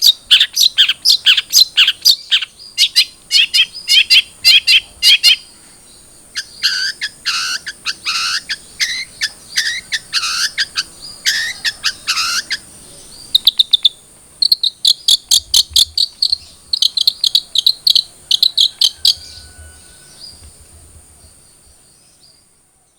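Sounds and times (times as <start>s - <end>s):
shrike chirping and chattering: 0.0s - 5.5s, 6.2s - 20.5s
faint high-pitched whine: 0.0s - 22.9s.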